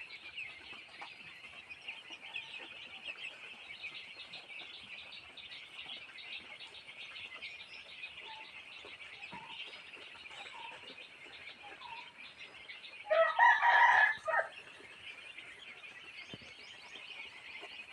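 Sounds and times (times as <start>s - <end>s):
chicks peeping and chirping: 0.0s - 17.9s
chicken crowing: 13.1s - 14.6s.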